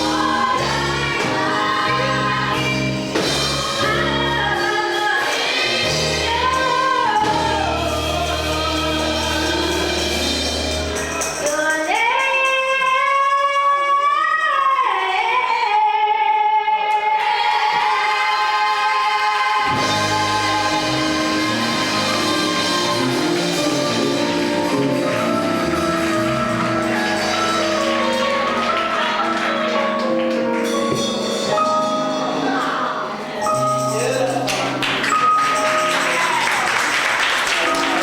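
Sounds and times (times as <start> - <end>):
gospel choir singing: 0.0 - 11.6, 16.9 - 35.1
band playing: 0.0 - 12.1, 19.6 - 38.0.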